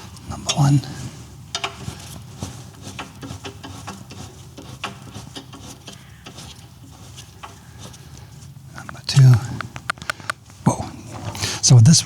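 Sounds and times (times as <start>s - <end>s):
wrench clicking: 1.5s - 2.1s.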